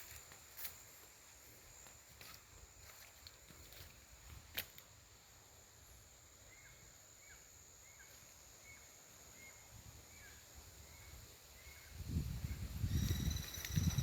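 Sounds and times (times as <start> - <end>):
high insect-like whine: 4.7 - 14.0.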